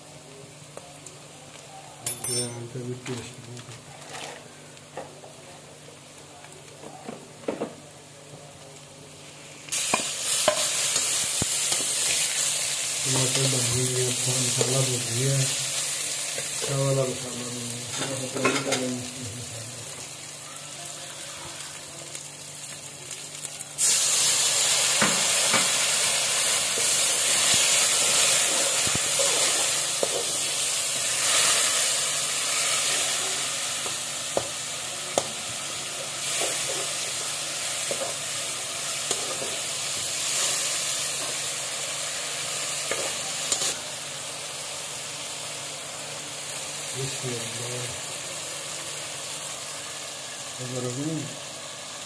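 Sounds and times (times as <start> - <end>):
food sizzling in oil: 8.0 - 52.0
liquid hissing in hot pan: 9.3 - 17.2, 23.8 - 52.0.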